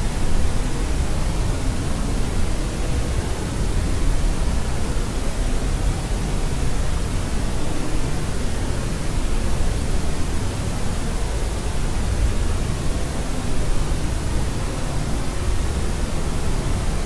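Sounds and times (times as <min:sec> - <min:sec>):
white noise with low rumble: 0:00.0 - 0:17.0.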